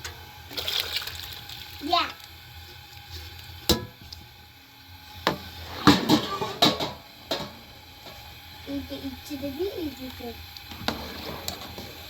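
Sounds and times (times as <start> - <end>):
pots and dishes clattering: 3.6 - 4.1, 5.2 - 8.2, 10.8 - 12.0.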